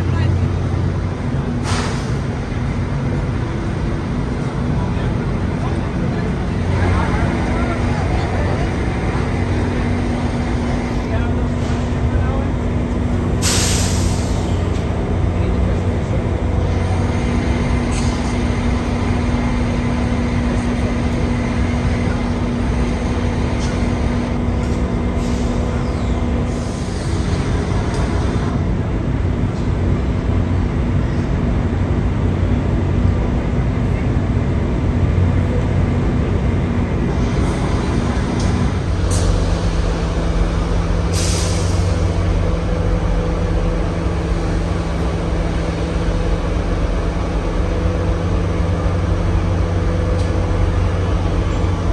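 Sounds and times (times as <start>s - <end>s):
locomotive engine droning: 0.0s - 51.9s
air release hisses: 1.6s - 2.2s, 13.4s - 14.6s, 39.1s - 42.4s.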